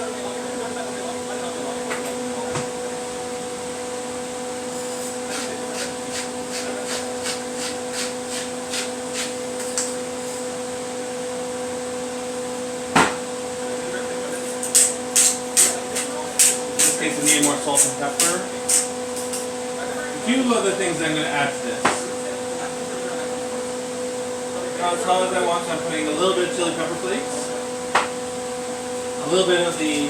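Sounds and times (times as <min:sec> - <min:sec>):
steady whirring hum: 0:00.0 - 0:30.0
utensil strokes in a pan: 0:05.3 - 0:09.4.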